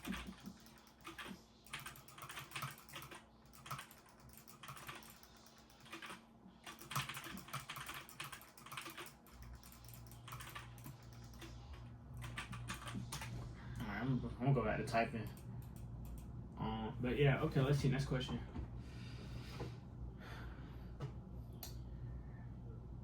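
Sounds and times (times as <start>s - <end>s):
typing on computer keyboard: 0.0s - 11.6s, 12.2s - 13.3s.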